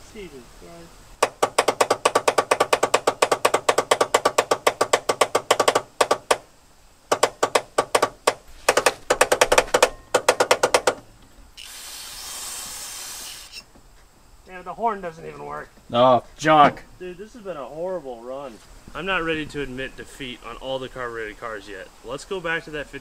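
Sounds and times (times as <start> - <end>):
aerosol can spraying hiss: 11.6 - 13.7.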